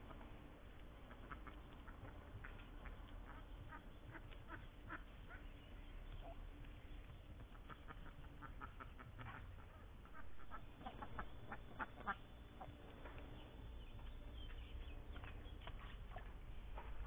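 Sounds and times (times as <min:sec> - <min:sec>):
ducks quacking: 0:01.0 - 0:12.8.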